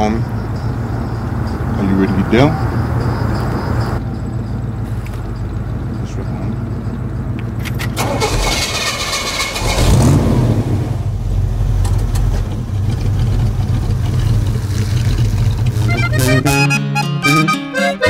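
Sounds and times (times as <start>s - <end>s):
car engine running: 0.0s - 16.7s
accordion music: 15.6s - 18.0s.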